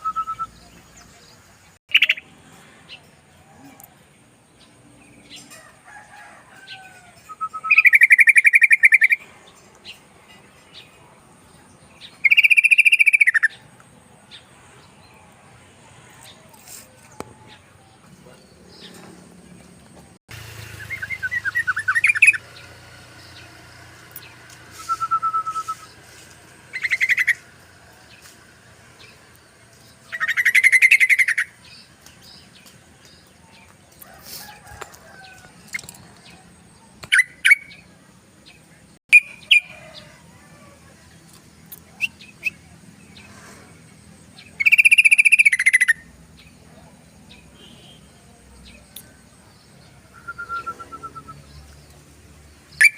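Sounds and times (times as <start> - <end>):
bird chattering song: 7.2 - 11.0, 11.6 - 14.5, 20.6 - 28.3, 29.0 - 33.8, 41.1 - 52.9.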